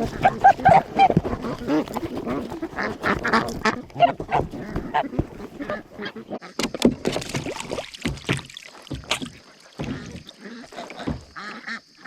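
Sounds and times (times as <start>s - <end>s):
ducks quacking: 0.0s - 6.6s, 9.8s - 12.0s
water splashing and sloshing: 0.0s - 12.0s.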